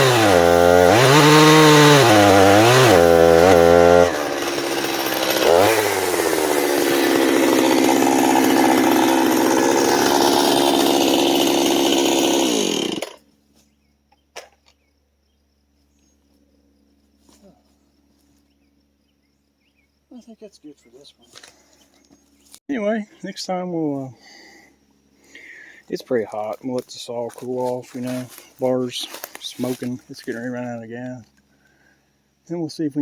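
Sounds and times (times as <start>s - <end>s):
chainsaw cutting wood: 0.0s - 13.3s, 28.0s - 29.9s.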